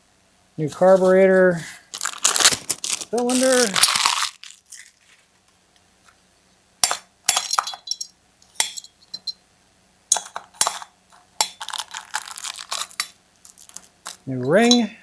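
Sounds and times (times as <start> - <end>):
small metal parts clinking: 7.3 - 9.4, 10.1 - 15.0.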